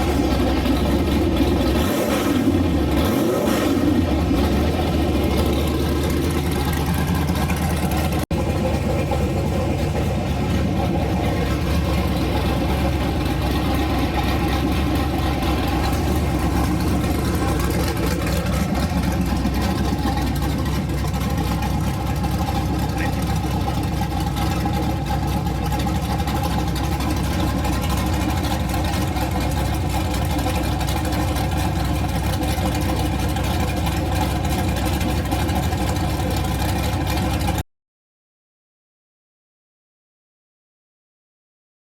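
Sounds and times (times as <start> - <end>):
engine idling: 0.0 - 37.6.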